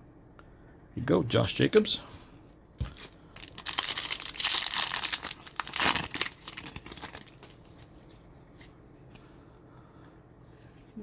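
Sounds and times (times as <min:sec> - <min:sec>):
plastic wrapper tearing and crinkling: 0:02.9 - 0:08.0.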